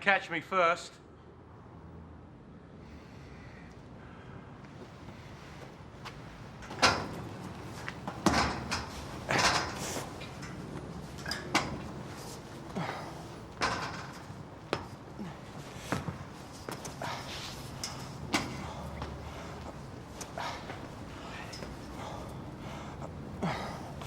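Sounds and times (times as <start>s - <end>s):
person breathing: 2.8s - 5.7s, 15.1s - 24.0s
footsteps and clambering: 4.7s - 24.0s.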